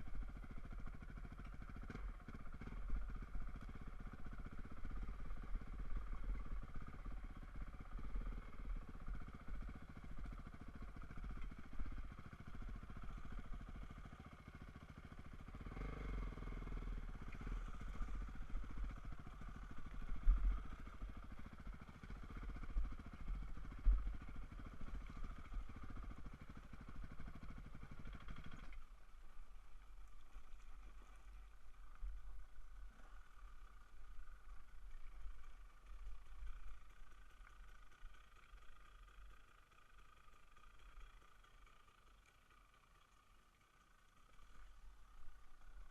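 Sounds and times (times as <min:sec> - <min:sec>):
dirt bike engine running: 0:00.0 - 0:45.9
uneven low rumble: 0:16.3 - 0:27.4.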